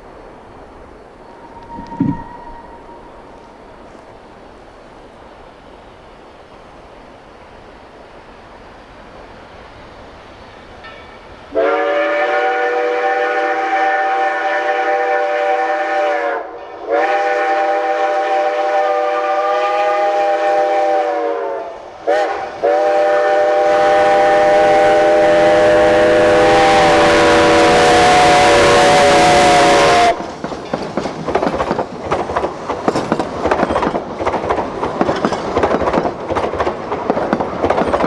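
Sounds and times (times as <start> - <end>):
train rumble: 0.0 - 38.0
steam locomotive chime whistle: 1.2 - 3.7, 10.8 - 30.3.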